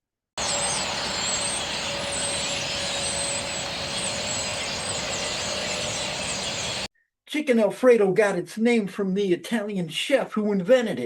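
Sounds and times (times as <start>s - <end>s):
rushing background noise: 0.4s - 6.9s
small birds twittering: 0.4s - 6.9s.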